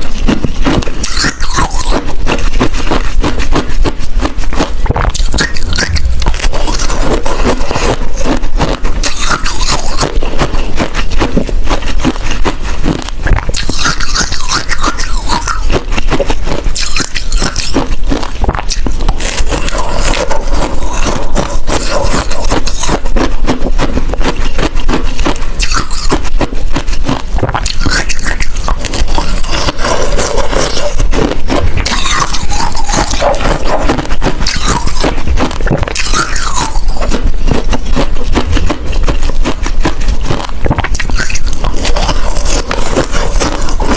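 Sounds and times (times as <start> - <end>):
ice crunching while chewed: 0.0 - 43.9.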